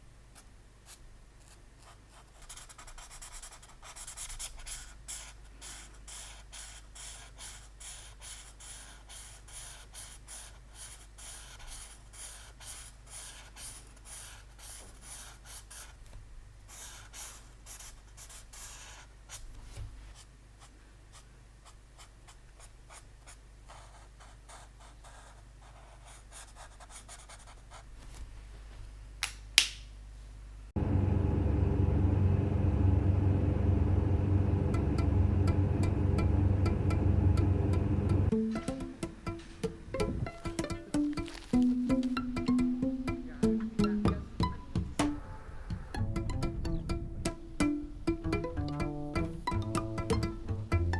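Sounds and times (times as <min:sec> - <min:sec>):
pen scratching on paper: 0:00.9 - 0:16.0, 0:16.7 - 0:19.4, 0:20.6 - 0:27.9.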